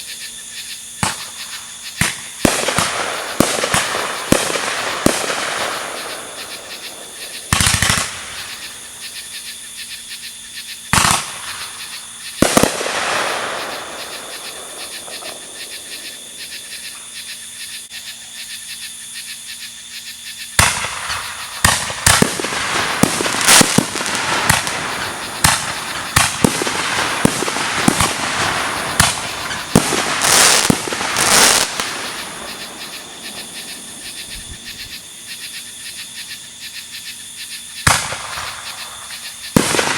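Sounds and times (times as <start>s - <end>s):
fireworks booming: 1.0s - 9.0s, 10.9s - 16.4s, 20.6s - 35.2s, 37.8s - 39.9s
fireworks crackling: 1.0s - 9.0s, 10.9s - 16.3s, 20.6s - 35.0s, 37.8s - 39.9s.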